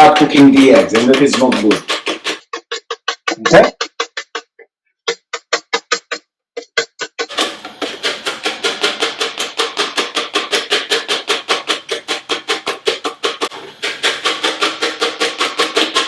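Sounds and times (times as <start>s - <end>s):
wire whisk clinking in a bowl: 0.0s - 2.3s.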